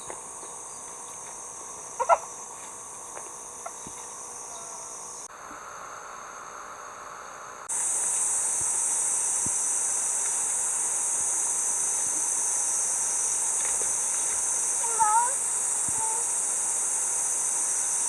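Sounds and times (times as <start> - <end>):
insects shrilling: 0.0 - 5.3, 7.7 - 18.0.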